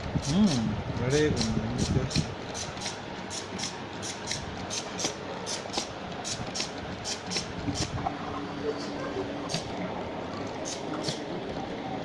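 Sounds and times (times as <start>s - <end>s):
machine clicking: 1.3s - 8.0s
mechanical hiss: 1.3s - 8.0s, 10.6s - 11.2s.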